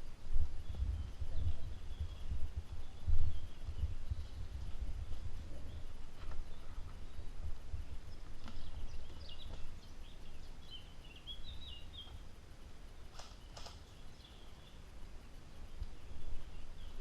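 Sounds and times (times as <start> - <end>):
steady low rumble: 0.0 - 13.1
birds chirping: 0.0 - 17.0
sharp clicks: 13.1 - 13.9.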